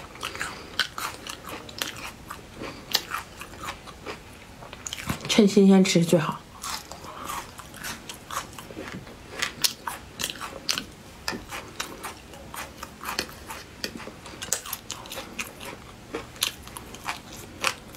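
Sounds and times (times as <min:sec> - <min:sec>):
crunchy chewing: 0:00.0 - 0:05.2, 0:06.6 - 0:17.9.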